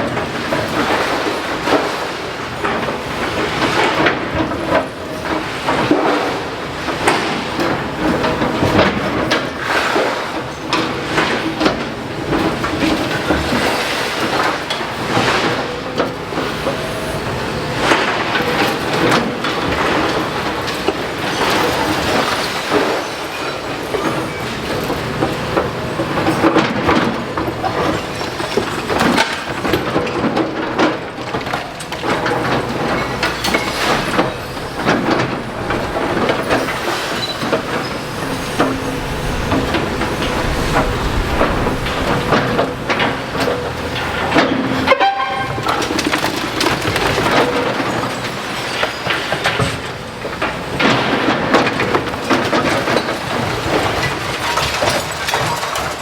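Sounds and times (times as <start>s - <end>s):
debris crunching and scraping: 32.2s - 44.3s
excavator engine running: 32.3s - 44.9s.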